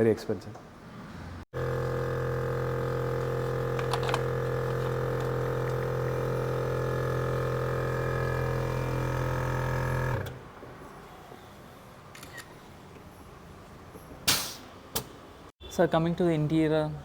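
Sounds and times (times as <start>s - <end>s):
electric winch motor hum: 1.6s - 10.4s.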